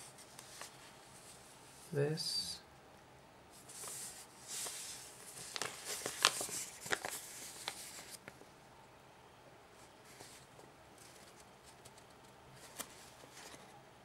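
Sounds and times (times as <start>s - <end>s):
paper rustling: 0.0s - 1.5s, 3.6s - 8.4s, 9.8s - 13.7s
paper crinkling and snapping: 4.6s - 8.4s, 10.2s - 13.7s.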